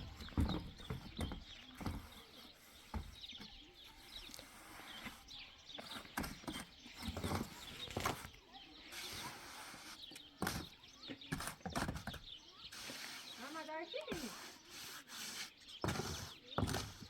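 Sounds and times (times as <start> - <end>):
hoof knocks and thumps: 0.0 - 3.8, 5.8 - 8.4, 15.8 - 17.0
high chirping calls: 0.0 - 14.9.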